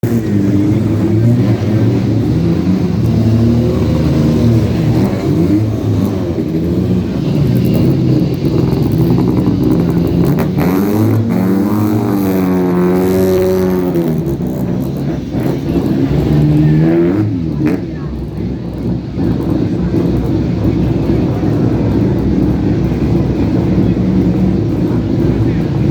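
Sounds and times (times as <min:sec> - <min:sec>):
sports car engines revving by: 0:00.0 - 0:25.9.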